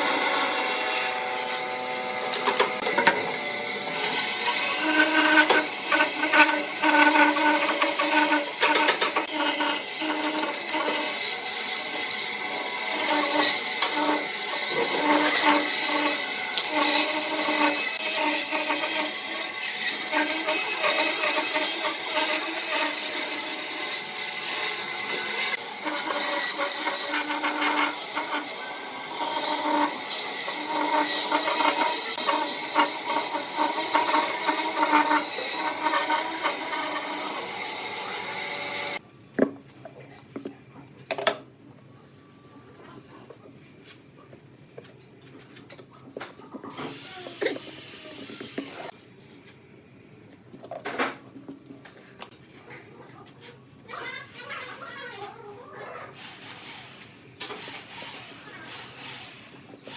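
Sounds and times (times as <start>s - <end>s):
wood lathe hum: 0.0s - 39.0s
turning tool scraping wood: 4.0s - 11.2s, 11.9s - 23.5s, 24.4s - 39.0s.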